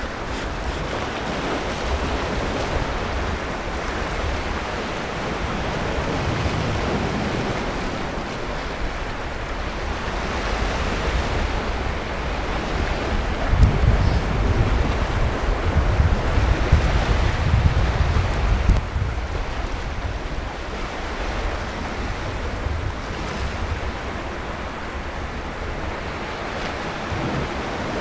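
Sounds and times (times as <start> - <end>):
waves breaking on beach: 0.0 - 28.0
wind rumble on microphone: 0.0 - 28.0.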